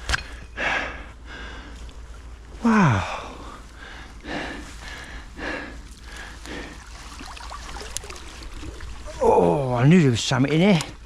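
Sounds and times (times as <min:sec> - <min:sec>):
man breathing heavily: 0:00.0 - 0:06.9.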